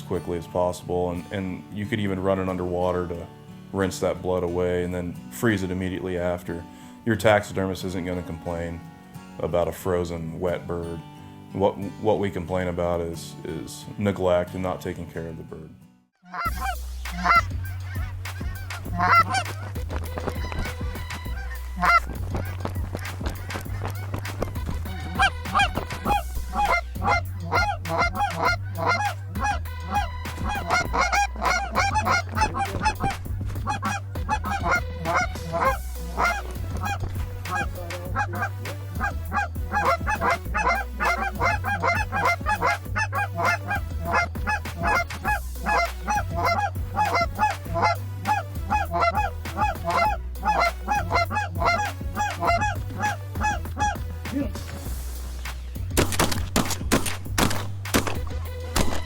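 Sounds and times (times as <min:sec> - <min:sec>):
geese honking: 0:16.2 - 0:55.5
background music with bass line: 0:16.4 - 0:59.0.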